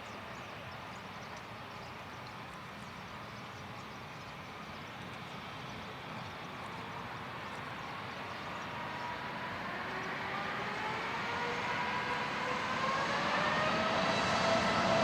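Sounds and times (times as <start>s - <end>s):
jet engine whine: 3.9s - 15.0s
jet airliner engines rushing: 4.5s - 15.0s.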